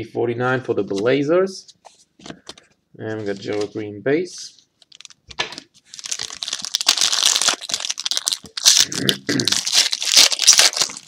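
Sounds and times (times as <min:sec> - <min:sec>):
card pack wrapper crinkling: 0:04.8 - 0:11.0.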